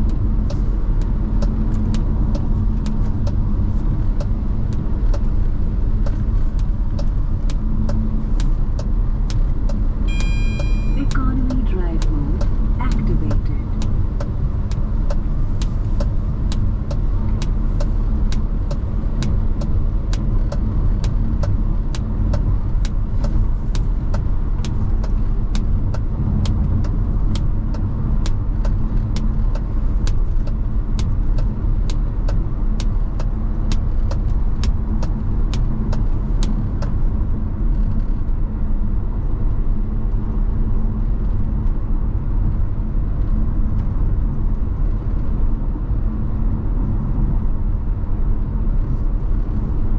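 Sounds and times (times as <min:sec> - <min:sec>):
car engine and road rumble: 0:00.0 - 0:49.9
even ticking clicks: 0:06.0 - 0:37.0.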